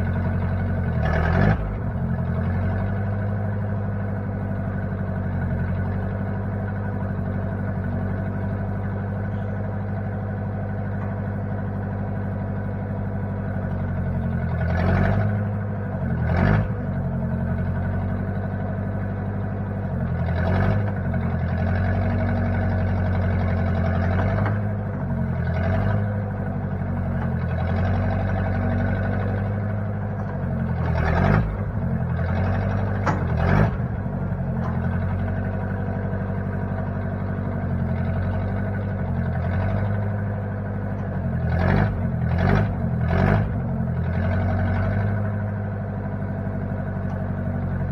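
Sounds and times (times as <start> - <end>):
backhoe engine running: 0.0 - 47.9
short clunks: 30.0 - 35.8.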